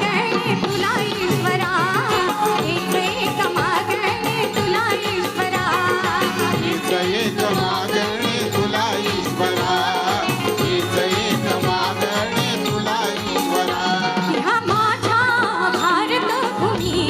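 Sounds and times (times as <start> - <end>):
fast hand-drum beat: 0.0 - 17.0.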